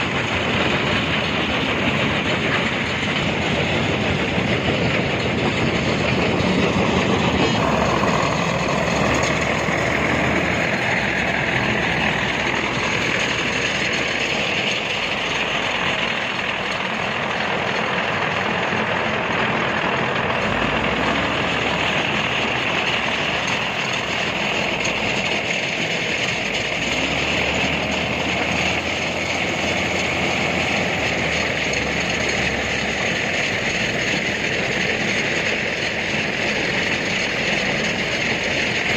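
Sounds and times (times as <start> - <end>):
heavy construction machinery: 0.0 - 38.9.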